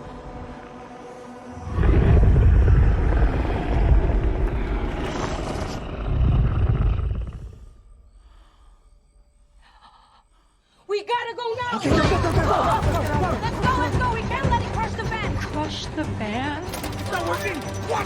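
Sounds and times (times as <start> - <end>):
deep creature roar: 1.6 - 7.8.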